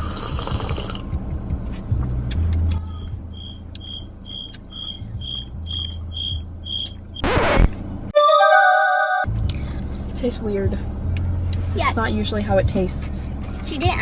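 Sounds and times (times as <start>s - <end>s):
car rumble: 0.9s - 8.1s, 9.3s - 14.0s.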